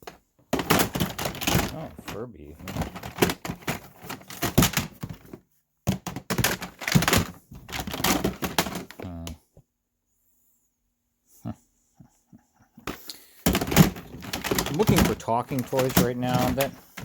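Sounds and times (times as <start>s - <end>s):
plastic toys clattering: 0.0s - 9.4s, 12.8s - 17.0s.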